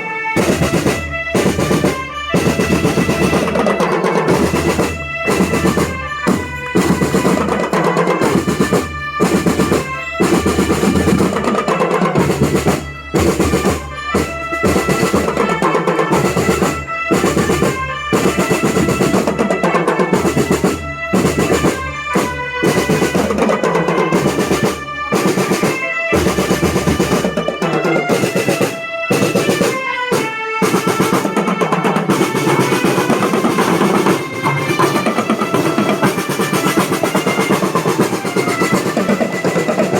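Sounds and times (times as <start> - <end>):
snare-drum rolls: 0.0 - 39.9
high melody line: 21.2 - 39.9.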